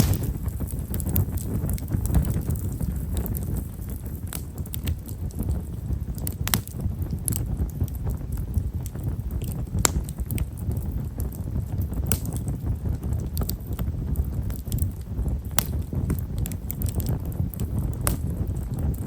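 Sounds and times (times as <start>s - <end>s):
firewood snapping: 0.0s - 3.4s, 6.2s - 7.4s, 8.8s - 10.5s, 12.0s - 12.4s, 15.5s - 18.2s
campfire flame rushing: 0.0s - 19.0s
fire crackling: 0.0s - 19.0s.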